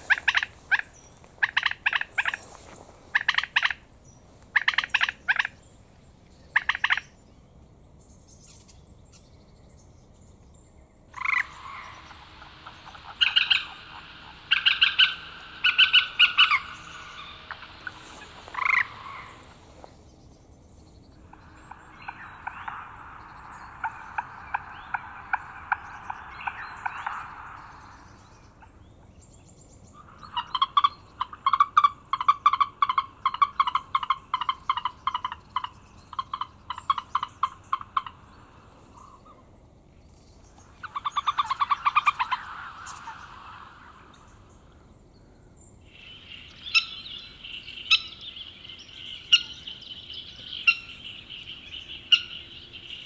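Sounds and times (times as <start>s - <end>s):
bird chattering calls: 0.0s - 3.8s, 4.5s - 5.6s, 11.2s - 19.9s, 21.2s - 29.0s, 30.0s - 39.3s, 40.6s - 44.8s, 45.9s - 53.0s.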